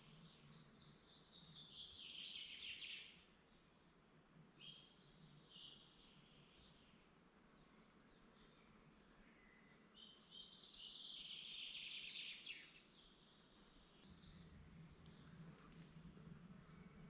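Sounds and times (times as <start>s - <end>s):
birdsong: 0.0s - 17.0s
faint low rumble: 13.0s - 17.0s.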